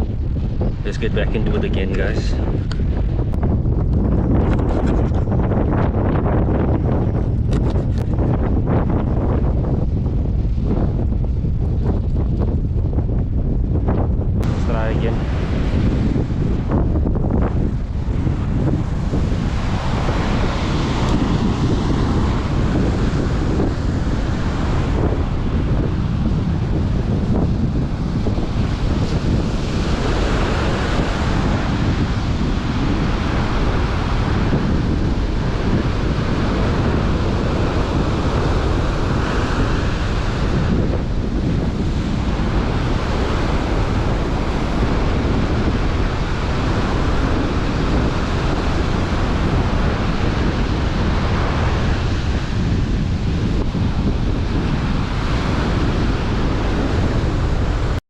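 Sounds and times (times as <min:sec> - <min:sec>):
strong wind on microphone: 0:00.0 - 0:58.0
ocean surf breaking: 0:14.4 - 0:58.0.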